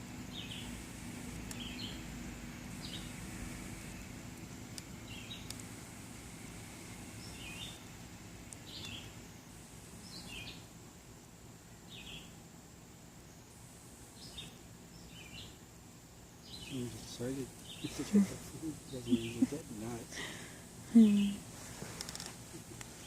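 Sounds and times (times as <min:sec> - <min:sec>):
faint low outdoor hum: 0:00.0 - 0:23.0
faint clicks: 0:04.4 - 0:05.7
bird calling: 0:16.5 - 0:21.4.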